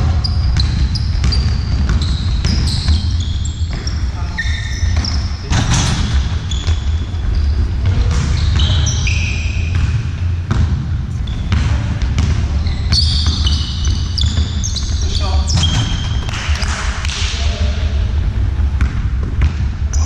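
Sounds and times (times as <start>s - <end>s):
shoe squeaks on hall floor: 0.0s - 9.8s, 11.2s - 11.8s, 12.5s - 16.7s
ball bouncing: 0.0s - 17.8s, 18.6s - 20.0s
low rumble of hall: 0.0s - 20.0s.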